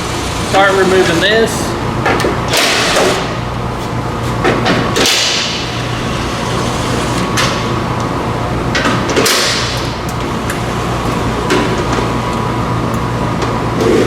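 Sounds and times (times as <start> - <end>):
tool rasping: 0.0 - 1.4, 5.6 - 7.4
steady low hum: 0.0 - 14.0.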